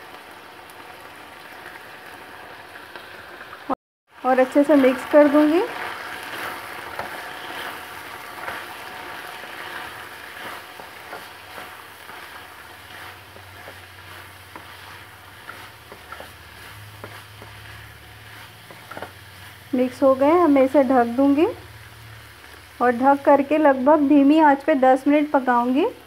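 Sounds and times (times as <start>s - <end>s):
chickpeas sizzling in oil: 0.0s - 26.0s
spatula scraping pan: 4.4s - 21.2s.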